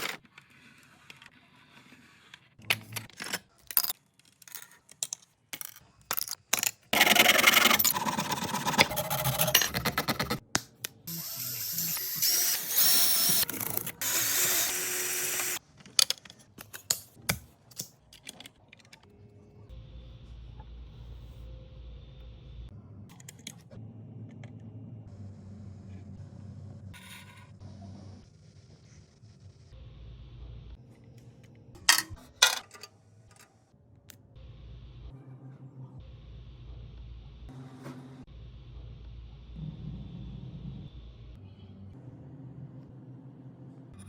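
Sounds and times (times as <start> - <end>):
small parts clicking and knocking: 2.6 - 8.0, 11.8 - 19.1, 31.8 - 33.6
small motor running: 11.1 - 15.6.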